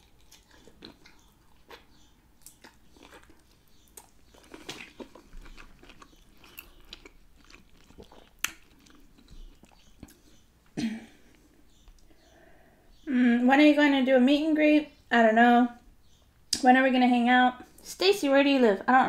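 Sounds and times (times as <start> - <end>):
chewing: 0.0 - 10.5.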